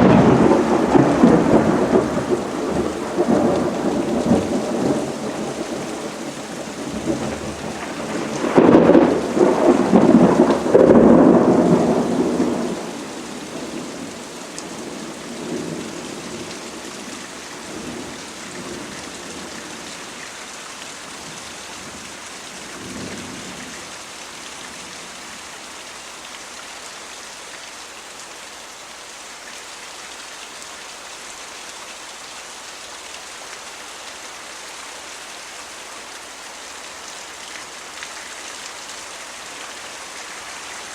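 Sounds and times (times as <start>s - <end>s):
thunder rumbling: 0.0s - 20.1s
steady rain: 0.0s - 40.9s.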